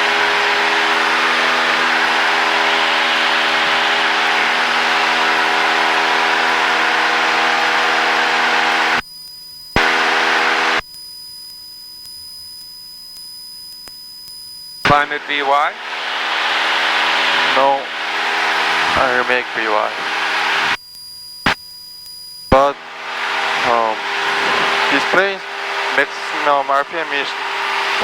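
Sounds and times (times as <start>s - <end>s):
airplane engine and propeller: 0.0s - 8.9s, 14.9s - 20.7s, 22.6s - 28.0s
faint electronic tone: 0.0s - 28.0s.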